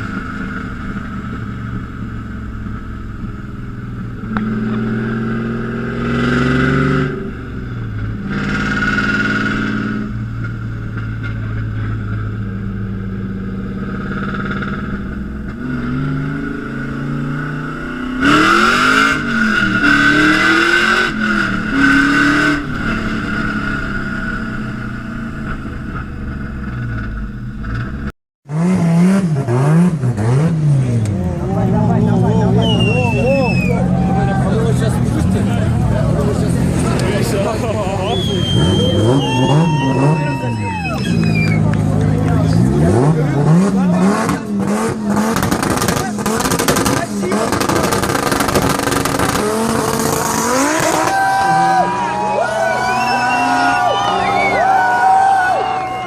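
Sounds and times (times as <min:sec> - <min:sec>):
exhaust backfire bangs: 0:00.0 - 0:31.2, 0:41.0 - 0:51.6
car engine revving: 0:00.0 - 0:56.0
another engine revving: 0:04.0 - 0:55.1.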